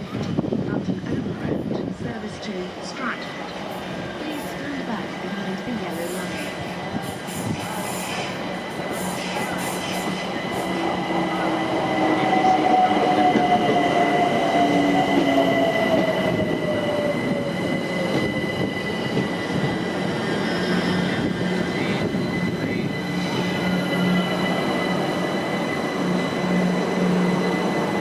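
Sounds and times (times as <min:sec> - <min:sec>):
high squeal: 0:09.0 - 0:28.0.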